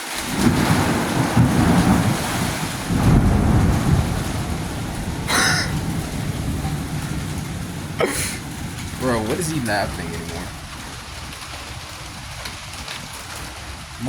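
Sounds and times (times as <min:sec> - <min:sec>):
steady rush of rain: 0:00.0 - 0:14.0
wind gusts buffeting microphone: 0:00.2 - 0:14.0.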